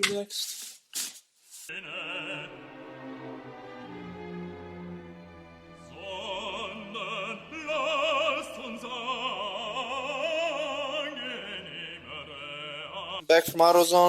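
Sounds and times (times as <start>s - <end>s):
orchestral accompaniment: 1.7s - 11.5s
operatic singing with vibrato: 1.7s - 14.0s.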